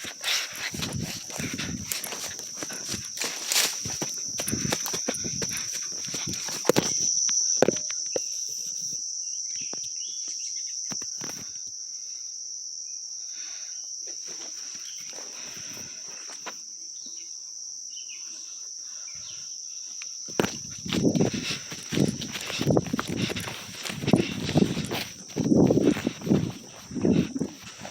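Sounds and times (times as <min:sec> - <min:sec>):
rustling: 0:00.0 - 0:07.0, 0:20.4 - 0:27.9
crickets chirping: 0:00.0 - 0:27.9.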